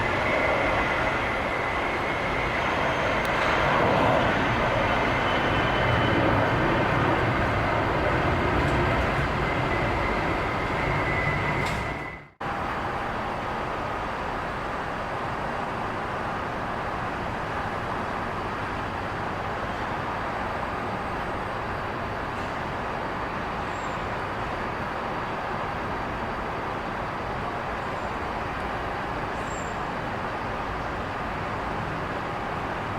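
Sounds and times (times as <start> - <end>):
steady rushing noise: 0.0 - 12.4
jet engine with high whine: 0.0 - 32.9.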